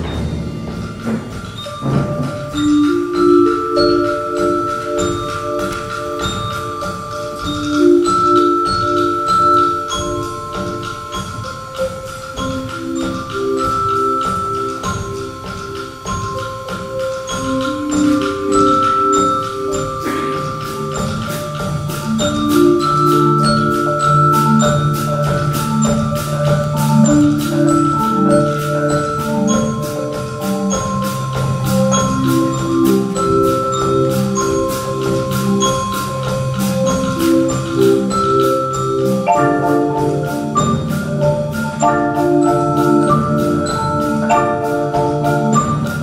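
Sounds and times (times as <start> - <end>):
mallet percussion chords: 0.0 - 46.0
held high notes: 17.3 - 46.0.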